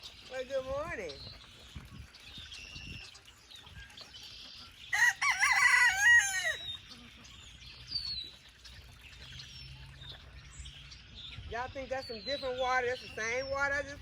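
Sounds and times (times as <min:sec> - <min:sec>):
rooster crowing: 0:04.9 - 0:06.6.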